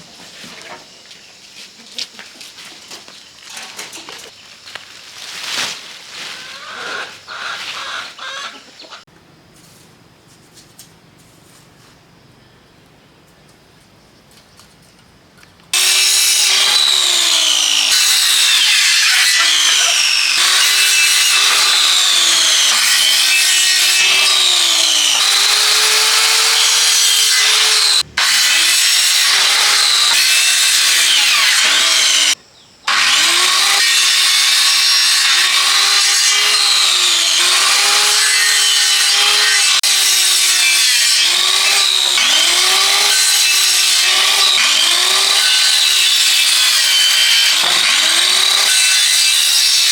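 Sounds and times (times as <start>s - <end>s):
hand saw cutting wood: 6.4s - 8.5s, 15.8s - 49.9s.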